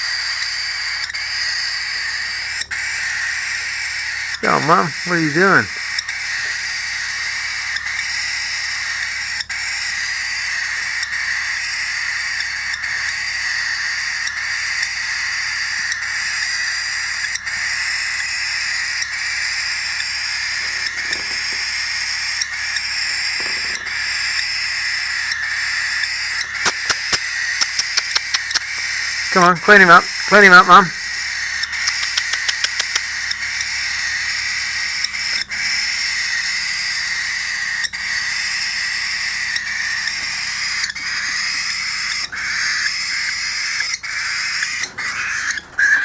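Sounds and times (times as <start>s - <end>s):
chicks hissing begging call: 3.4s - 5.8s, 17.5s - 33.6s.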